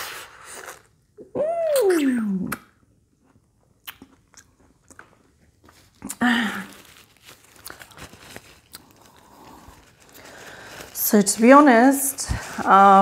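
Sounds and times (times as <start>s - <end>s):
chewing juicy fruit: 3.4s - 6.2s.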